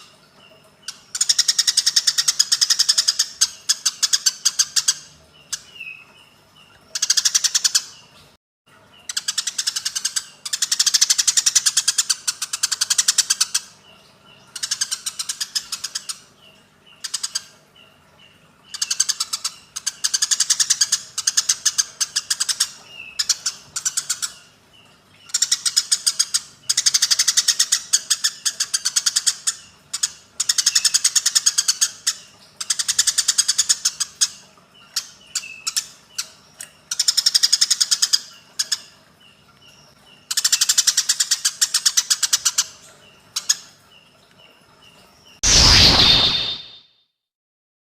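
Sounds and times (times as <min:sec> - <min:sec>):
faint thin chirps: 0:45.4 - 0:46.8.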